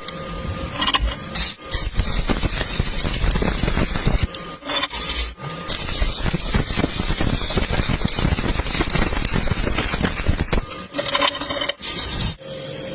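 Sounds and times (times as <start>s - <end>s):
arc welding crackling: 1.3s - 11.1s.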